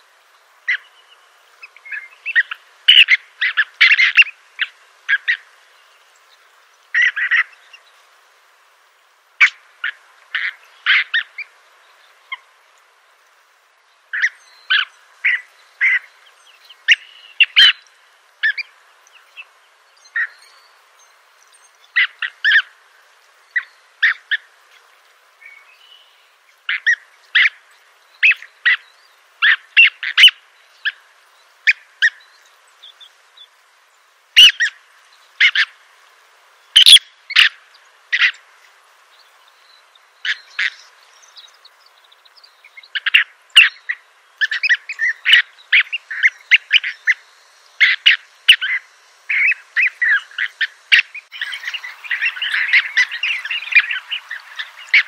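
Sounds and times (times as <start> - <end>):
sharp bird calls: 0.7 - 5.5, 6.9 - 7.8, 14.1 - 20.6, 25.4 - 31.0, 34.4 - 35.8, 36.8 - 38.5, 39.4 - 55.0.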